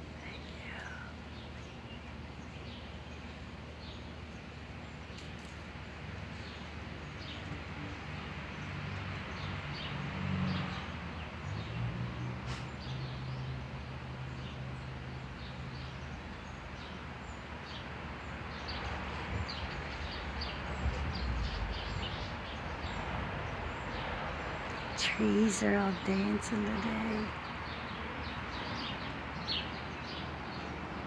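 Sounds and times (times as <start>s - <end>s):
small birds chirping: 0.0s - 7.6s, 14.3s - 31.0s
outdoor background noise: 0.0s - 31.0s.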